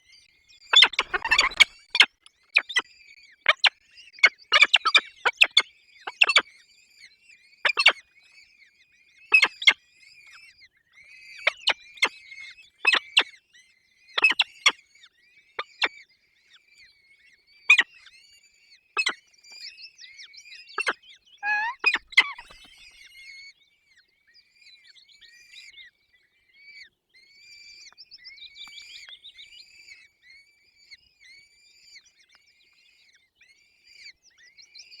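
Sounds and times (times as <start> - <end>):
falcon chicks cheeping: 0.8 - 2.1, 20.8 - 22.9.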